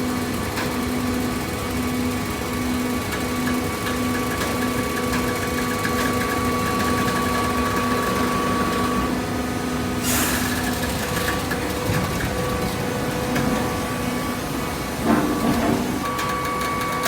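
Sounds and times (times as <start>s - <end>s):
short hiss: 10.0s - 10.6s.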